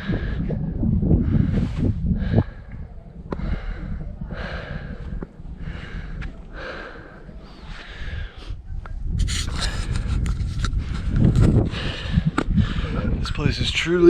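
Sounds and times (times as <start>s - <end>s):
person breathing hard: 0.0s - 8.6s, 10.8s - 13.2s
low microphone rumble: 0.0s - 14.0s.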